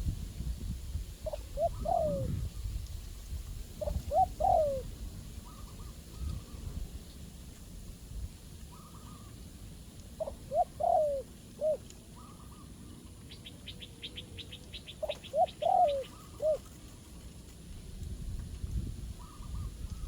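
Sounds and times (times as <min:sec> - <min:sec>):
low wind rumble: 0:00.0 - 0:11.6, 0:17.0 - 0:20.0
dove cooing: 0:01.2 - 0:02.4, 0:03.8 - 0:06.7, 0:10.2 - 0:13.1, 0:13.7 - 0:17.2
small bird chirping trill: 0:13.3 - 0:17.0.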